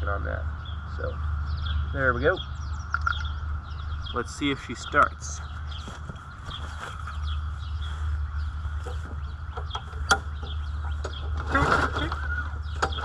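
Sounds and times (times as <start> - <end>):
small birds chirping: 0.0 - 13.0
lawnmower recoil starter pull: 11.0 - 13.0.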